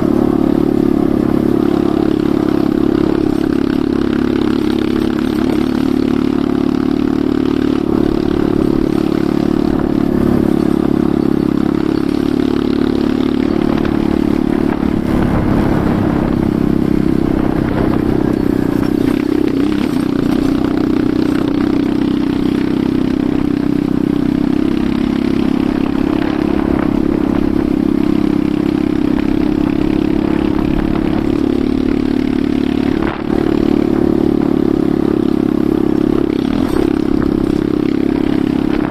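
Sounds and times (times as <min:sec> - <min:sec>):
motorcycle engine running: 0:00.0 - 0:38.9
motorcycle clattering: 0:02.2 - 0:38.9.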